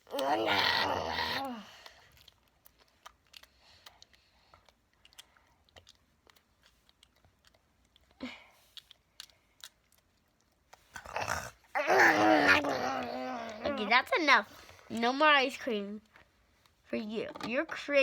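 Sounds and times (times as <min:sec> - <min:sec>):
child mouth smacks and clicks: 0:01.4 - 0:11.2
child loud voiced sound: 0:11.8 - 0:14.1.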